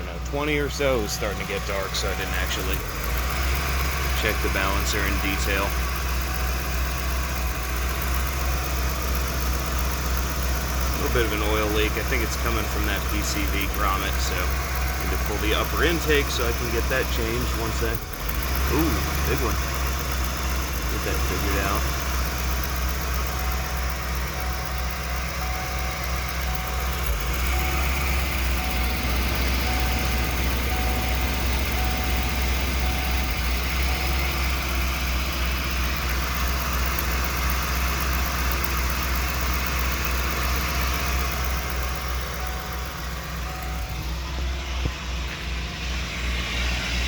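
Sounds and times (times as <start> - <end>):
engine idling unevenly: 0.0 - 47.0.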